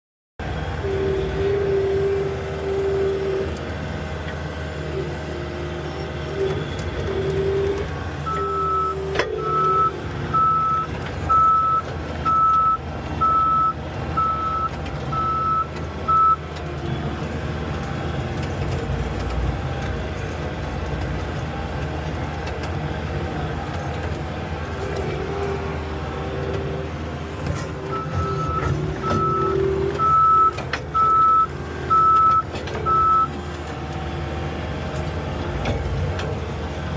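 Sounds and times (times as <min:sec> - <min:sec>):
loader engine running: 0:00.4 - 0:36.9
pitched whine: 0:04.9 - 0:19.4
backup alarm beeping: 0:27.9 - 0:33.3.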